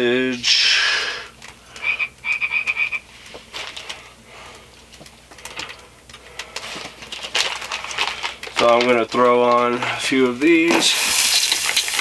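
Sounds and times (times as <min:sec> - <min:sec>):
plastic package rasping: 0:03.2 - 0:12.0
plastic package rustling: 0:03.2 - 0:12.0.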